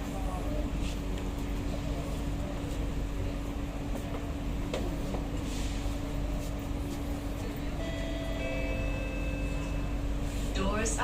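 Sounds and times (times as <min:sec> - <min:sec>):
train car systems hum: 0:00.0 - 0:11.0.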